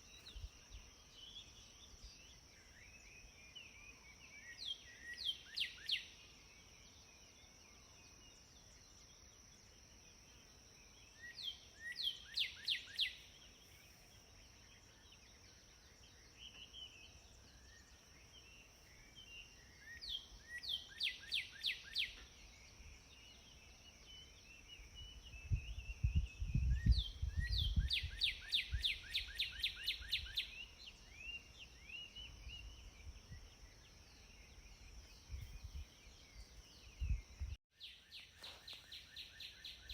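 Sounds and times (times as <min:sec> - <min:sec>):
songbird whistling: 0:25.0 - 0:32.8.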